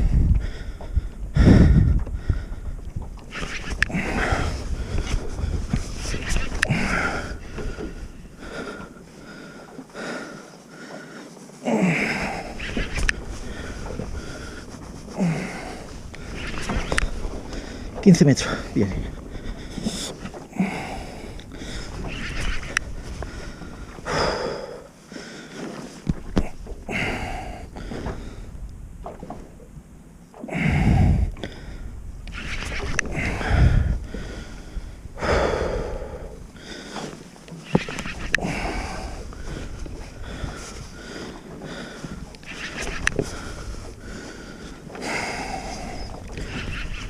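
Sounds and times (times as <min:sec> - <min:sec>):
heavy breathing through a snorkel: 0:00.4 - 0:02.8, 0:03.4 - 0:28.5, 0:30.5 - 0:47.0
breathing through a snorkel: 0:30.5 - 0:47.0.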